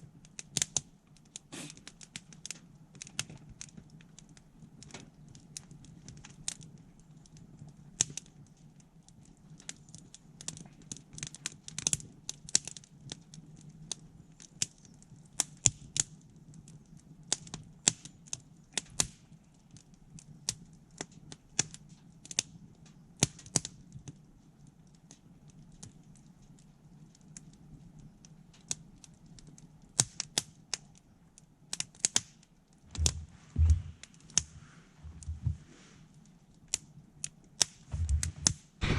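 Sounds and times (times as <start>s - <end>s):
campfire crackling and popping: 0.0s - 38.9s
steady low hum: 32.8s - 36.2s, 37.9s - 38.9s
dull low thumps: 32.9s - 35.7s, 37.9s - 38.9s.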